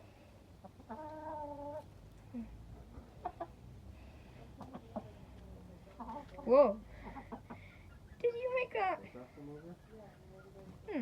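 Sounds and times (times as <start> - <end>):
chicken clucking: 0.6 - 2.0, 2.8 - 3.6, 4.4 - 8.5, 9.1 - 10.9.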